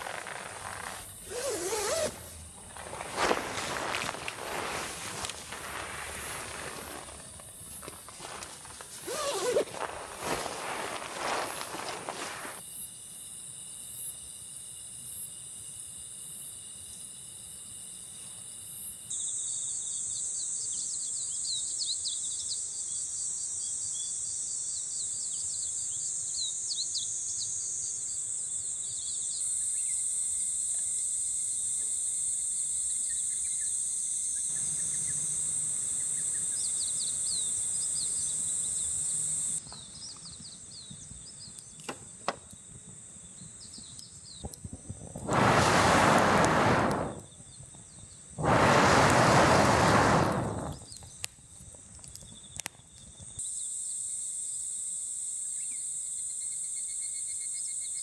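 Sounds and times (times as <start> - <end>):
rustling: 0.0 - 12.6, 44.7 - 47.3, 48.4 - 51.2
quick insect chirps: 0.0 - 13.1, 44.3 - 51.2.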